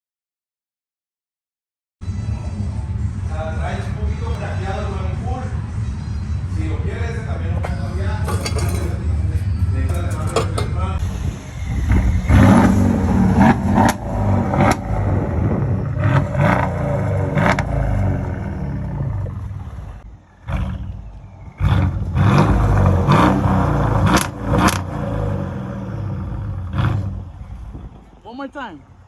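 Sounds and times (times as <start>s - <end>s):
car engine revving: 2.8s - 27.8s
exhaust cracks: 6.9s - 28.0s.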